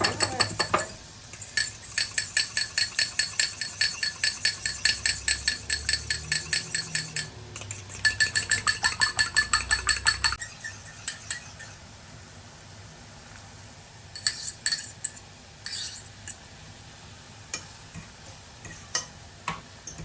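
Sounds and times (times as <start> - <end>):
utensil beating egg in a bowl: 0.0 - 12.2.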